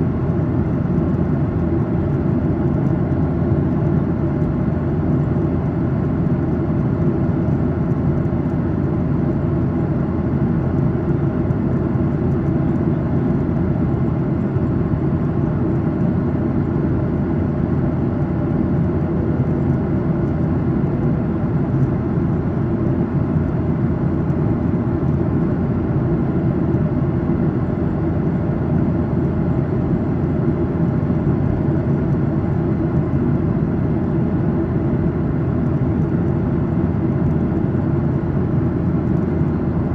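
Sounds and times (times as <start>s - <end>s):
jet engine hum: 0.0s - 39.9s.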